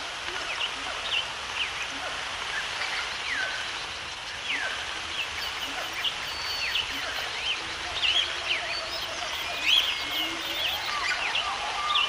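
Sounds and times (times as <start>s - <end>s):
steady background hiss: 0.0s - 12.0s
birds chirping and calling: 2.5s - 12.0s.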